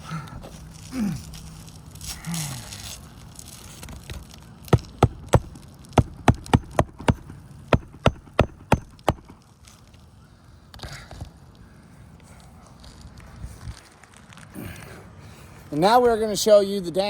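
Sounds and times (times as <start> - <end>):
hammer blows on roofing nail: 4.8 - 9.4.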